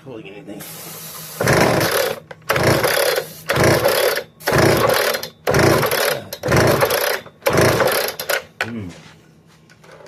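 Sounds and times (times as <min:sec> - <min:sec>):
saw engine cranking over: 0:01.4 - 0:08.5.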